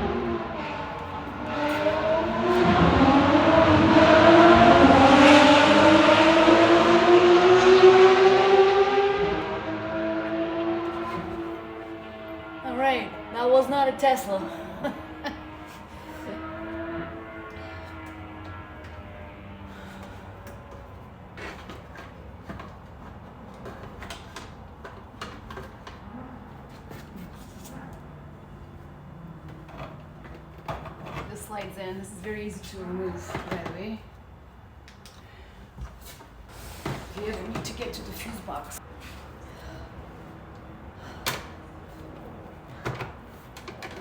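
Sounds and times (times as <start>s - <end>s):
vehicle engine passing by: 0.0s - 22.6s.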